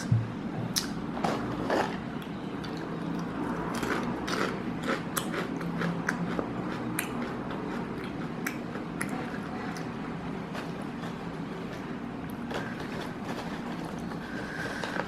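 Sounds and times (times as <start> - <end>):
person chewing potato chips: 0.8 - 11.4, 12.3 - 15.0.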